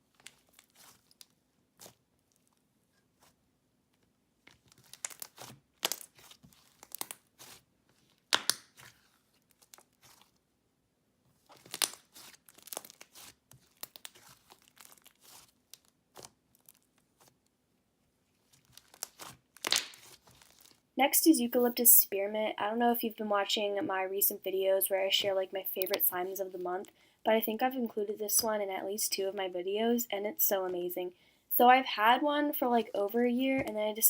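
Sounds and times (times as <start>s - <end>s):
slime crackling and popping: 4.5s - 10.4s, 11.5s - 17.3s, 18.5s - 20.8s.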